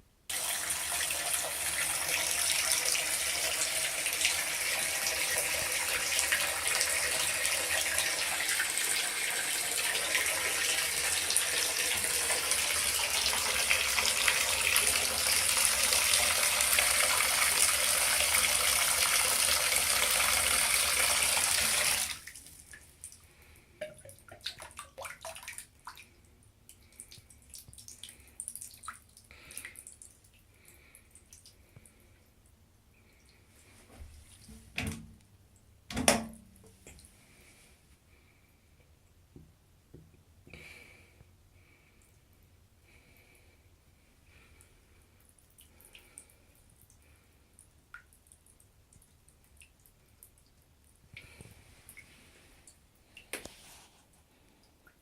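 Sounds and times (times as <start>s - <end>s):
water running from a tap: 0.3s - 22.4s
water dripping: 0.3s - 33.4s, 44.3s - 53.6s.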